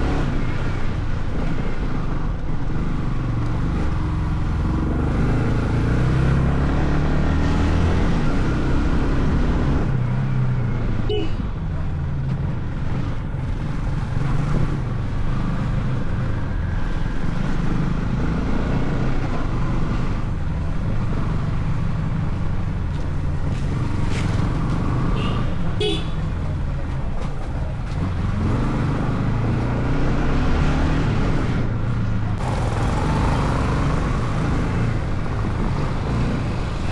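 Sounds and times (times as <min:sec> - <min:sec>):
wind and road noise: 0:00.0 - 0:36.9
motorcycle engine running: 0:20.2 - 0:28.3, 0:31.9 - 0:36.9.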